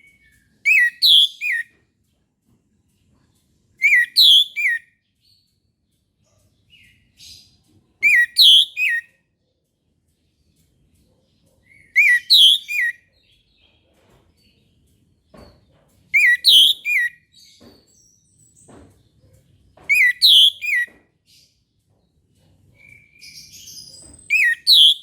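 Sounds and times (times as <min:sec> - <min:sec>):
thrush singing whistled notes: 0:00.7 - 0:01.6, 0:08.0 - 0:09.0, 0:12.0 - 0:13.0, 0:16.2 - 0:17.1, 0:19.9 - 0:20.9, 0:24.3 - 0:25.0.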